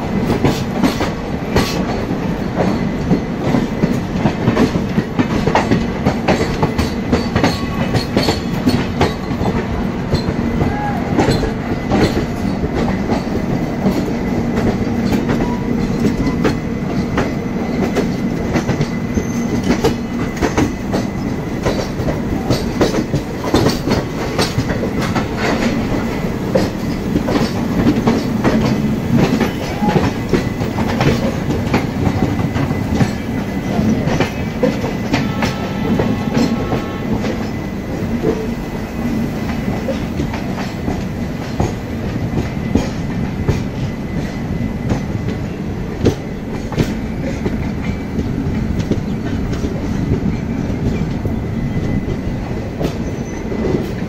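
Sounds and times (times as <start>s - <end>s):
passing train coaches: 0.0s - 54.0s
train wheels clickety-clack: 0.0s - 54.0s.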